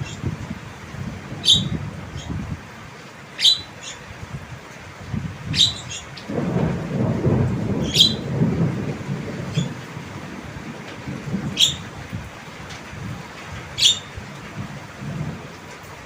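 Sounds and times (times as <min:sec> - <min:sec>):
bird piercing calls: 0:01.4 - 0:02.4, 0:03.4 - 0:04.1, 0:05.5 - 0:06.2, 0:07.8 - 0:08.3, 0:11.6 - 0:11.9, 0:13.8 - 0:14.1
low rumbling noise: 0:04.3 - 0:12.4.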